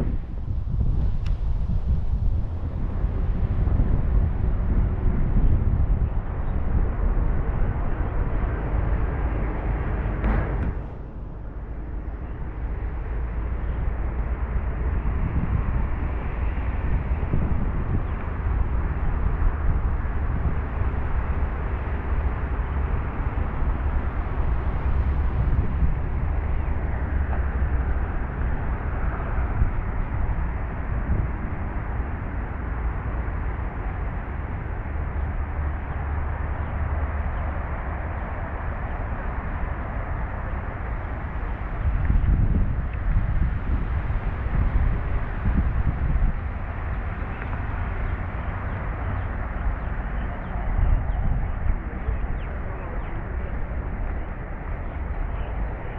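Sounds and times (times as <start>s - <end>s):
low outdoor rumble: 0.0s - 55.9s.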